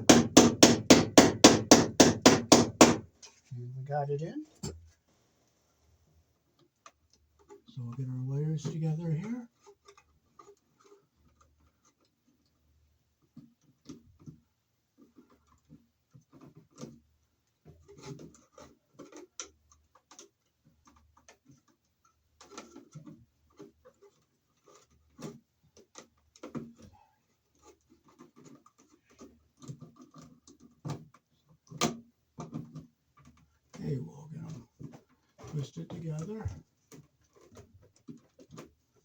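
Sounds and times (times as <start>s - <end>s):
electrical wires clicking and scraping: 6.6s - 12.6s, 15.0s - 39.0s.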